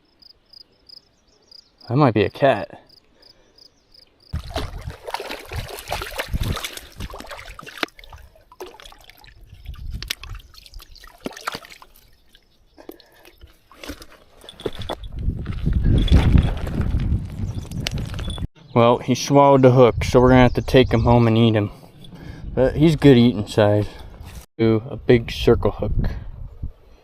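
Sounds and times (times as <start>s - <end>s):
water splashing and sloshing: 4.3s - 17.0s
handling clicks and rustles: 12.8s - 18.5s.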